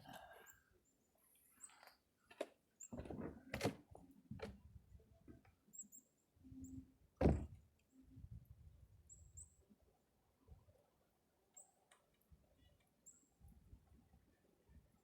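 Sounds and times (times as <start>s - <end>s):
door knocks and thumps: 7.2s - 7.6s.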